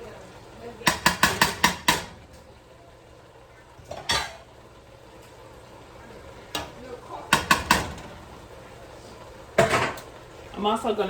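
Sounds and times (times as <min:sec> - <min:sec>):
metal cookware clanking: 0:00.7 - 0:02.4, 0:03.8 - 0:04.5, 0:06.5 - 0:08.4, 0:09.5 - 0:10.1.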